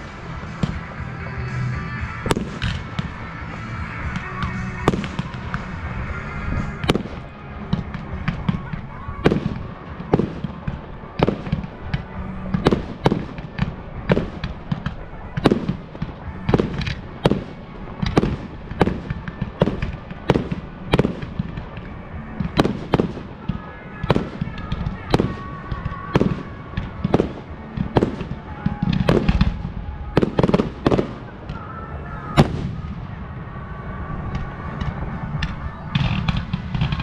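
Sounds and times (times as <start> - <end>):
fireworks bangs: 0.0 - 37.0
small firework cracks: 6.8 - 31.6.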